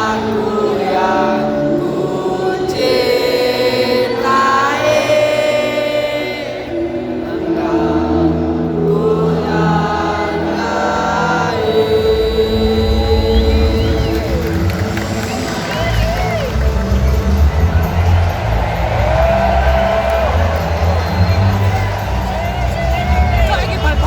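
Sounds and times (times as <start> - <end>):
many voices singing chant: 0.0 - 15.9.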